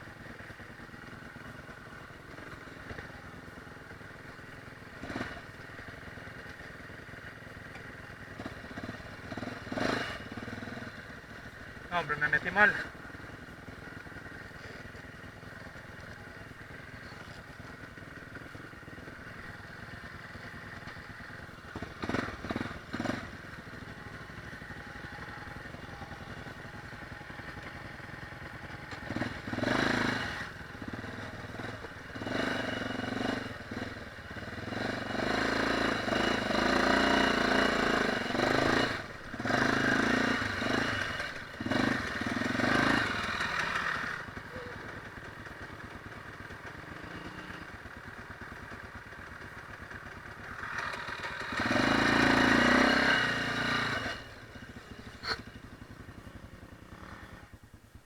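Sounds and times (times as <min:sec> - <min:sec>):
dirt bike engine revving: 0:05.0 - 0:05.6, 0:08.4 - 0:13.1, 0:18.2 - 0:45.5, 0:46.6 - 0:47.9, 0:50.4 - 0:57.6.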